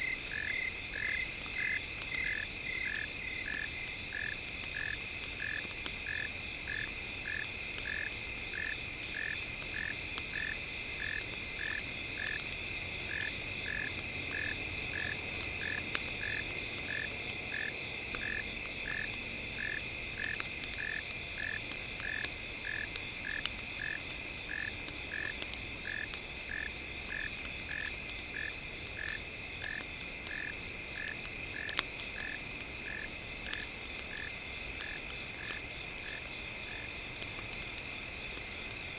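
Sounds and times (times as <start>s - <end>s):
faint crackles: 0.0s - 38.9s.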